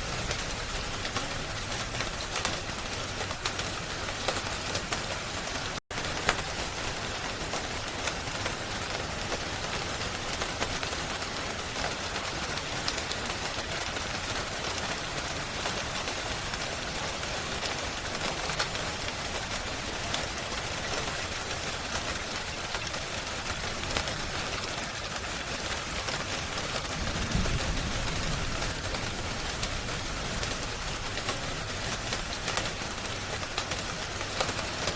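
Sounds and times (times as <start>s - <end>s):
rain hiss: 0.0s - 34.9s
wood fire crackling: 17.6s - 34.9s.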